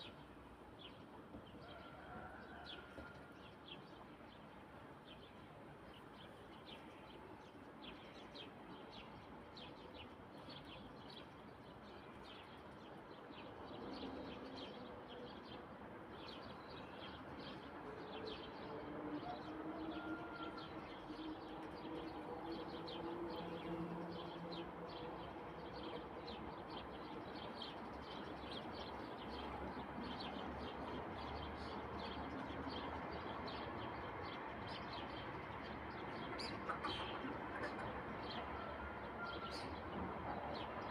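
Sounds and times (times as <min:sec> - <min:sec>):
drawn-out bird calls: 0:36.3 - 0:39.8.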